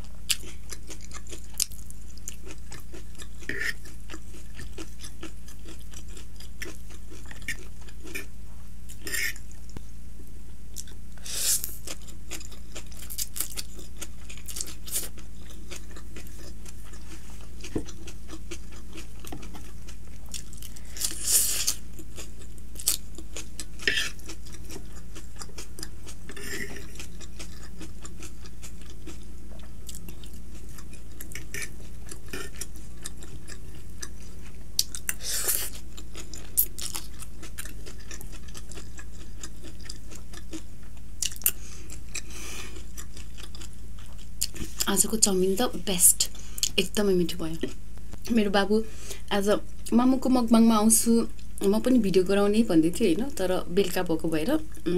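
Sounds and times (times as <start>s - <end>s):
steady low hum: 0.0s - 54.9s
chewing noodles: 0.3s - 8.3s, 11.6s - 44.9s
food crunches: 0.3s - 8.3s, 11.6s - 44.9s.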